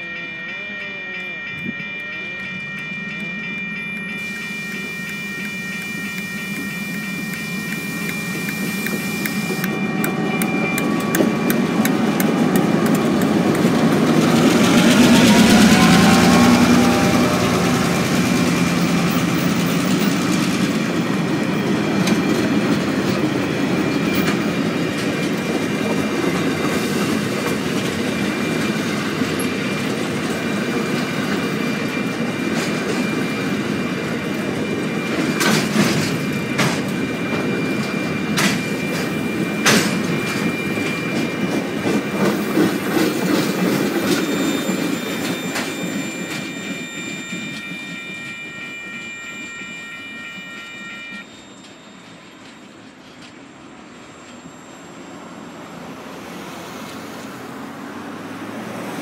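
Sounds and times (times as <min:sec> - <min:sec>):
level crossing bell ringing: 0:00.0 - 0:52.5
diesel locomotives passing: 0:00.0 - 0:59.0
wagon wheels on rails: 0:00.2 - 0:48.6.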